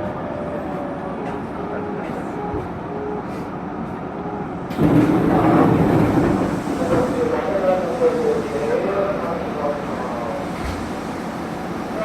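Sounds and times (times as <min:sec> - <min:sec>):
train running rumble: 0:03.7 - 0:12.0.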